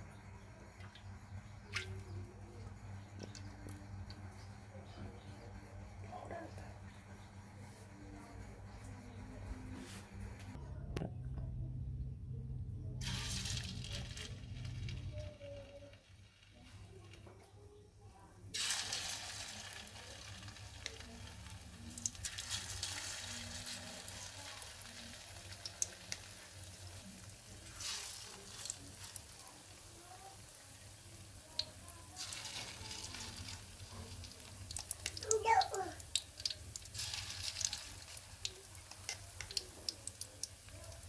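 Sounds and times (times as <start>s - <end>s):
hot oil sizzling in a wok: 13.0s - 16.5s, 18.6s - 41.0s.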